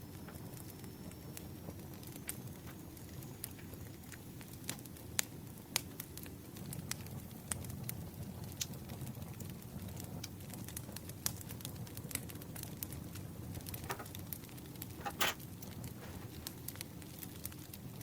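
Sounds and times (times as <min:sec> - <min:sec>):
campfire crackling and popping: 0:00.0 - 0:18.0
paper rustling: 0:15.0 - 0:16.6.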